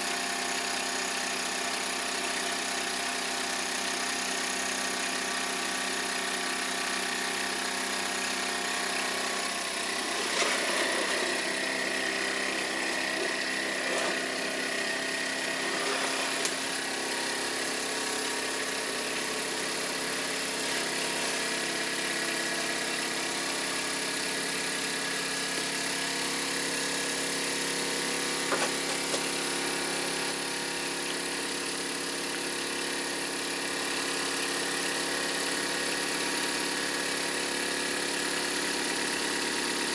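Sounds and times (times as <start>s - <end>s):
toy steam engine whirring: 9.4s - 18.1s
sharp clicks and knocks: 28.5s - 29.3s.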